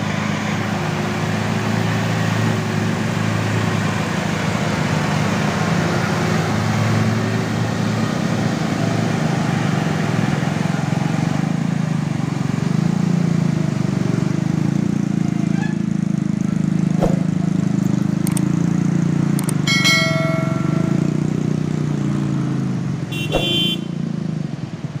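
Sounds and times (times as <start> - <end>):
heavy truck engine climbing: 0.0 - 25.0
short horn toot: 23.1 - 24.0.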